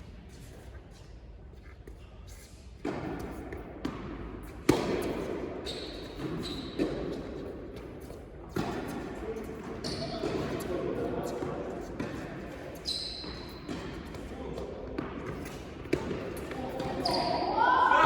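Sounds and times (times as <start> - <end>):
tennis ball bouncing on court: 2.8 - 10.7, 11.3 - 17.5
tennis ball struck by rackets: 2.9 - 5.4.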